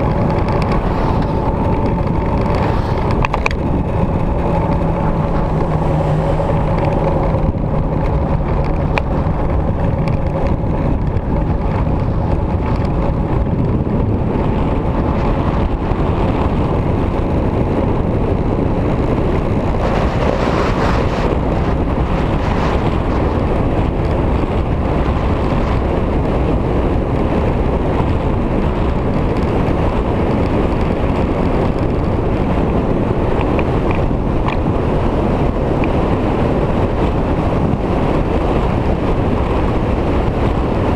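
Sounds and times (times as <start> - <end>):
motorcycle engine running: 0.0 - 40.9
wind rushing over microphone: 0.0 - 40.9.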